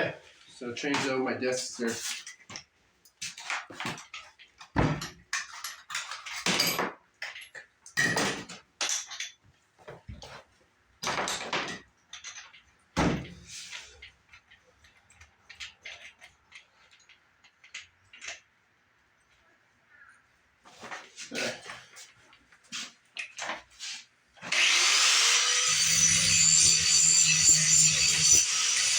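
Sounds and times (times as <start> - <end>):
metal tools clanking and rattling: 3.3 - 9.4.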